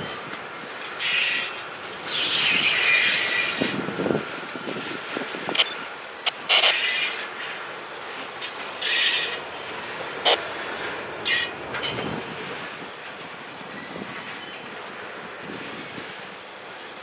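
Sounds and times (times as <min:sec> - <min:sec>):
train rolling rumble: 0:00.0 - 0:17.0
train wheels squealing: 0:00.9 - 0:04.8, 0:08.4 - 0:09.9, 0:11.2 - 0:12.0.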